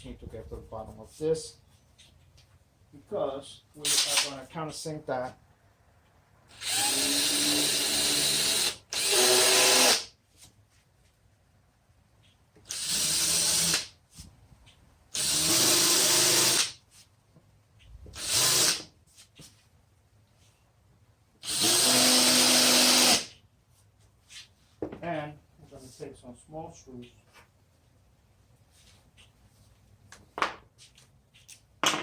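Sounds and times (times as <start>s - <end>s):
power drill drilling wood: 6.5s - 10.1s, 12.7s - 13.9s, 15.2s - 16.7s, 18.2s - 18.8s, 21.4s - 23.3s.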